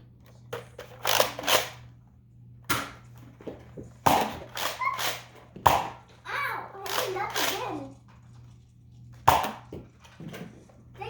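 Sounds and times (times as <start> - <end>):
toy blaster shots: 4.1 - 6.0, 6.8 - 7.6.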